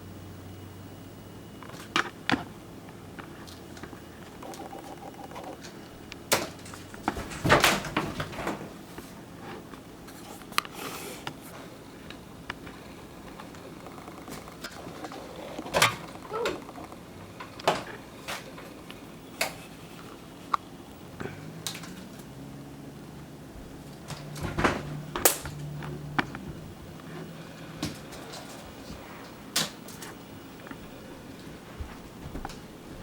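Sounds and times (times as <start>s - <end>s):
scrabbling rustles: 3.2s - 10.6s
cats knocking and thumping: 6.2s - 8.8s, 23.6s - 27.1s.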